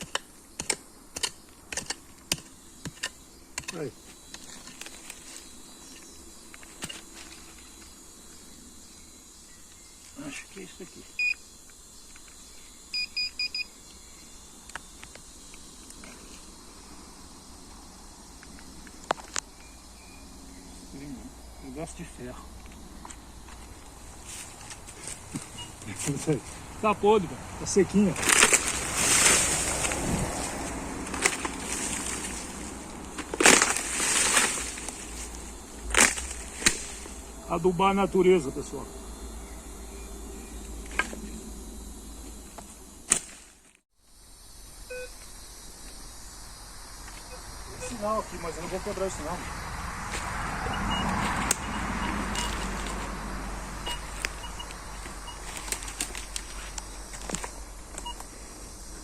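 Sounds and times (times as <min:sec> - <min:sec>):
twigs clicking: 0:00.0 - 0:07.9, 0:28.0 - 0:37.3, 0:42.5 - 0:43.8, 0:51.1 - 0:53.1, 0:54.0 - 0:58.3
rustling leaves: 0:00.0 - 0:59.0
metal detector beeping: 0:11.2 - 0:11.4, 0:12.9 - 0:13.7, 0:25.5 - 0:25.8, 0:44.9 - 0:45.1, 0:47.3 - 0:48.2, 0:50.8 - 0:52.6, 0:53.8 - 0:55.7
dry debris crunching: 0:28.0 - 0:37.4, 0:55.0 - 0:58.0.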